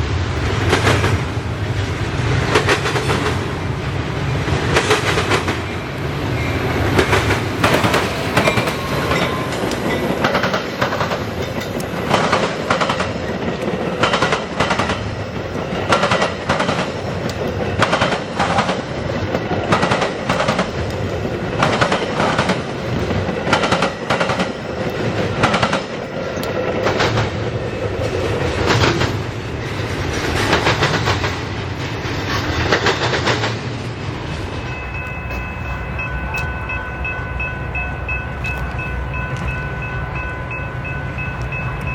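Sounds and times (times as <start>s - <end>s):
train rumble: 0.0s - 41.9s
train wheels clacking over rail joints: 0.4s - 3.6s, 4.4s - 5.8s, 6.6s - 36.8s.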